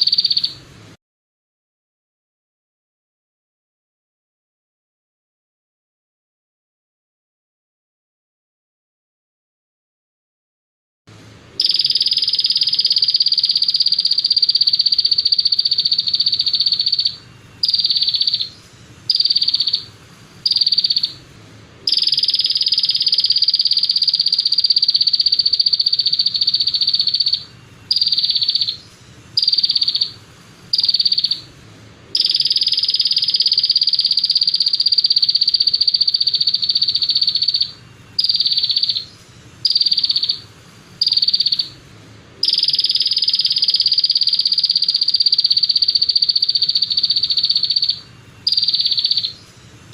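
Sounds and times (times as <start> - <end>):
songbird buzzing trill: 11.6 - 21.2, 21.9 - 28.8, 29.4 - 31.4, 32.2 - 39.1, 39.7 - 40.4, 42.4 - 49.4.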